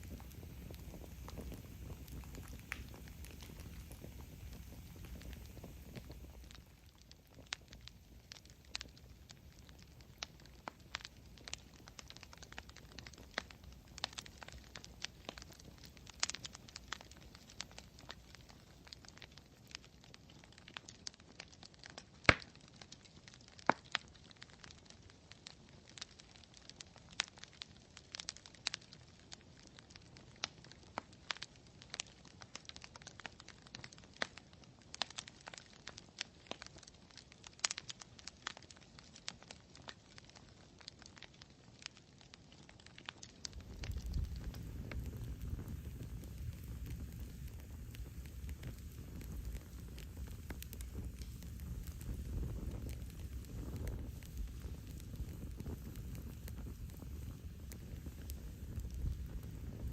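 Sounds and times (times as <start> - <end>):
faint hiss: 0.0 - 20.6, 43.2 - 59.9
campfire crackling: 0.0 - 59.9.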